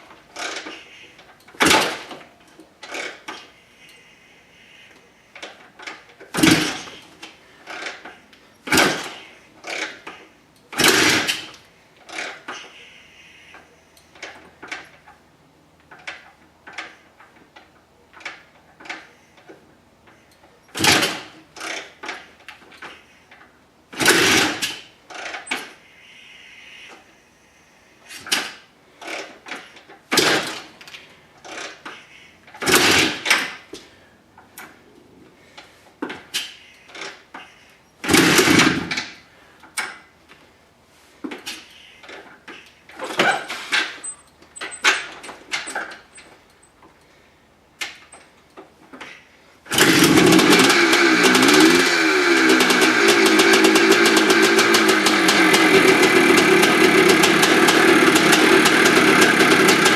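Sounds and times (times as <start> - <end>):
dirt bike kick-start clatter: 0.2 - 4.0, 5.3 - 12.8, 15.8 - 25.8, 28.1 - 34.8, 36.0 - 40.1, 41.3 - 46.8, 48.9 - 59.9
dirt bike engine running: 49.7 - 59.9.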